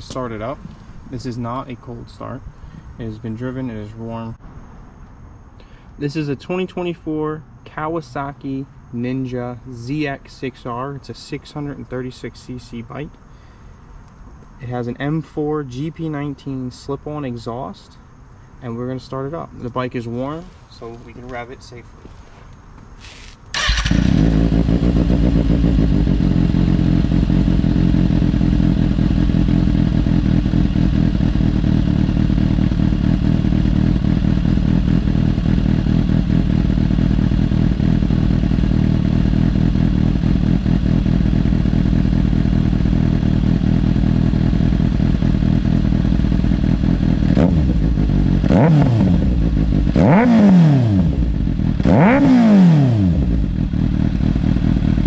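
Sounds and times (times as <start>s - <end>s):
motorcycle throttle blips: 0.0s - 1.8s, 20.4s - 55.0s
motorcycle engine idling: 0.0s - 2.9s, 22.2s - 52.3s, 53.0s - 55.0s.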